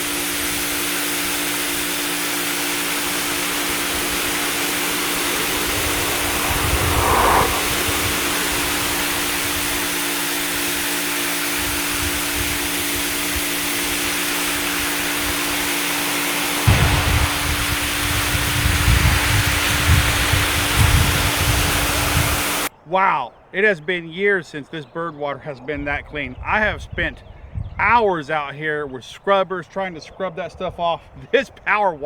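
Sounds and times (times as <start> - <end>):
low motor hum: 0.0 - 22.7
pressure washer water jet hissing: 0.0 - 22.7.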